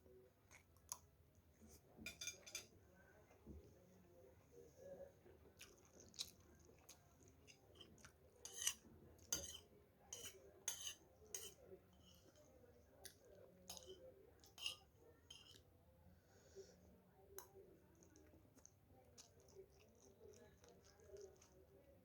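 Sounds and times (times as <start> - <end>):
cutlery clinking on a plate: 2.0 - 2.8, 7.4 - 12.4, 13.7 - 15.6.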